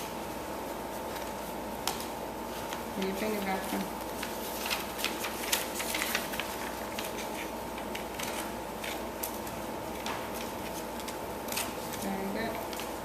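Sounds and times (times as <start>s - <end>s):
paper rustle: 0.9s - 13.0s
scissors cutting paper: 3.0s - 13.0s.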